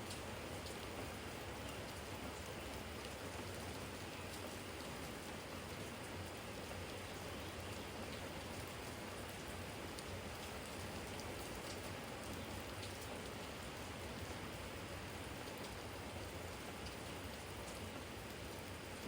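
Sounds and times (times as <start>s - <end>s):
rain falling: 0.0s - 19.0s
raindrop ticks: 9.9s - 13.6s.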